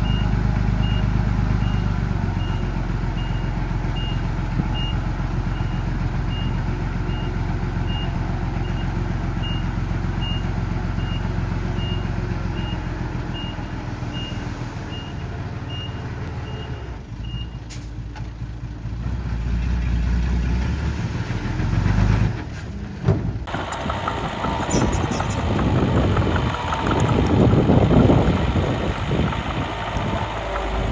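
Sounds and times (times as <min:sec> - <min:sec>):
truck engine running: 0:00.0 - 0:30.9
reversing alarm beeping: 0:23.5 - 0:30.8.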